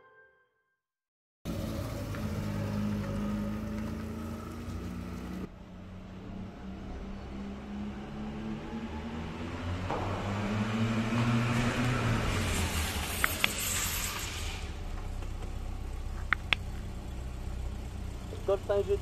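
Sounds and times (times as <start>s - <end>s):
car engine revving: 1.5s - 19.0s
rushing hiss: 12.3s - 14.8s
sharp clicks: 16.2s - 16.8s.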